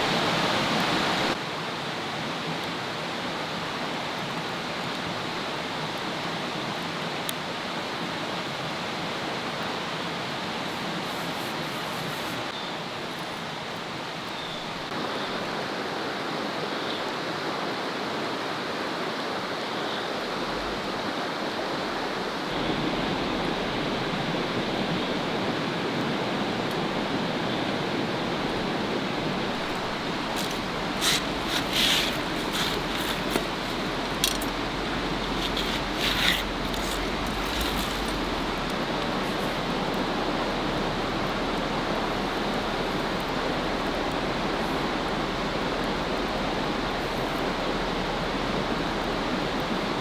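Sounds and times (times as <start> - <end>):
rushing outdoor noise: 0.0 - 50.0
sharp clicks and crackles: 30.4 - 34.6.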